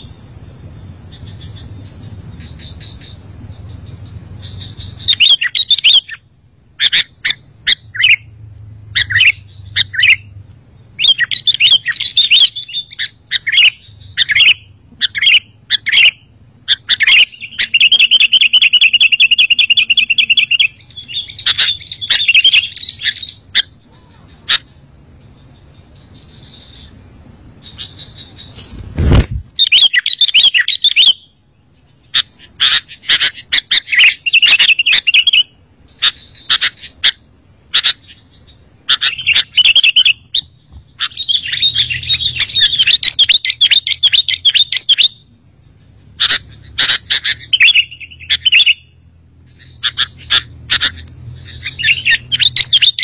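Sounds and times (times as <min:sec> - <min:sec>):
rapid bird trill: 0:00.0 - 0:53.0
bird calling in bright bursts: 0:04.4 - 0:08.3, 0:08.9 - 0:10.3, 0:10.9 - 0:24.8, 0:27.6 - 0:45.3, 0:46.2 - 0:53.0.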